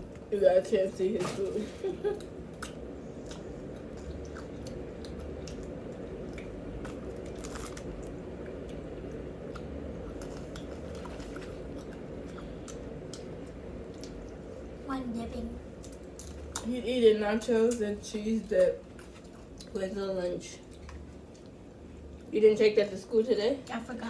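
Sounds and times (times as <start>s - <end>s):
steady low hum: 0.0s - 24.0s
chewing food: 2.2s - 14.5s, 20.6s - 22.3s.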